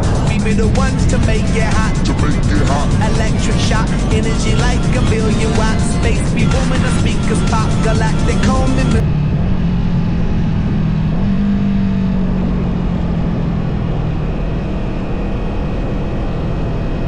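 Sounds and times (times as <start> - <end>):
music track: 0.0 - 9.0
motorcycle engine running: 0.0 - 16.8.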